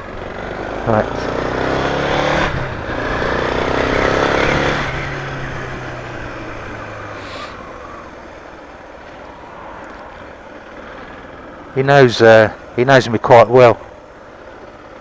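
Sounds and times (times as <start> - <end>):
motorcycle engine accelerating: 0.0 - 9.2.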